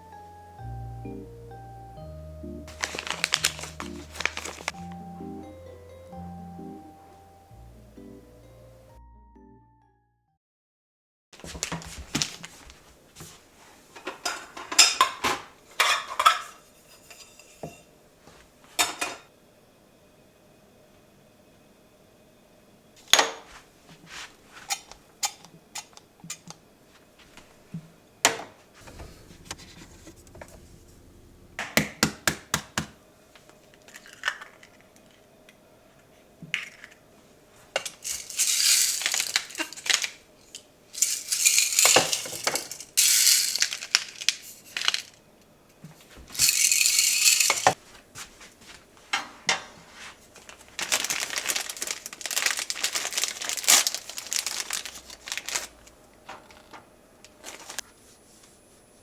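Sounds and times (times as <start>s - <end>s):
rustling: 2.6s - 4.9s, 28.7s - 31.6s, 37.7s - 45.2s, 49.8s - 56.7s, 57.3s - 58.7s
small hard objects clinking: 2.7s - 4.8s, 37.8s - 45.2s, 46.3s - 47.8s, 50.8s - 56.8s.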